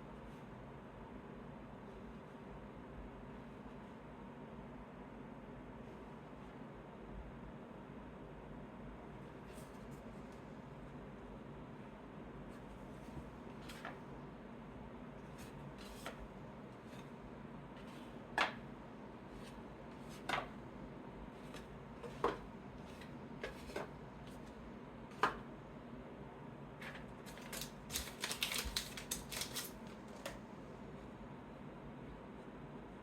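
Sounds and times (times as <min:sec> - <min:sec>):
cards clicking and rustling: 0:26.9 - 0:30.4
cards tapping and flicking: 0:27.3 - 0:30.4.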